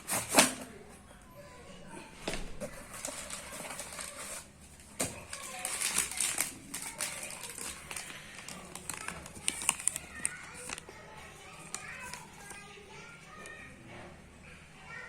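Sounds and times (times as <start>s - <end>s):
packaging crinkling and rustling: 2.6s - 13.6s.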